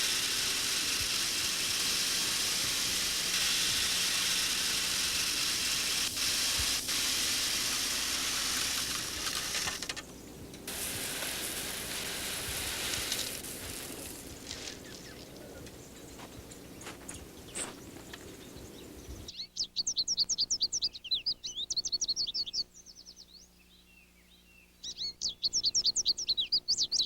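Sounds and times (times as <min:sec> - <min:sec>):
high-pitched hiss: 0:00.0 - 0:18.3.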